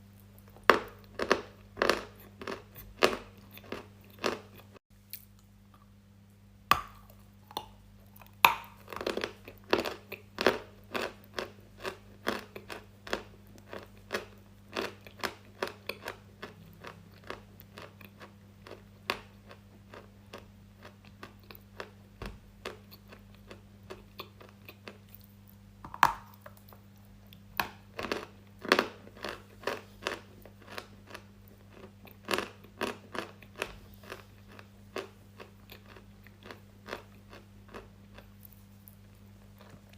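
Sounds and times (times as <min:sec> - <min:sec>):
faint low hum: 0:00.0 - 0:39.9
crunchy chewing: 0:00.1 - 0:05.9, 0:07.0 - 0:39.9.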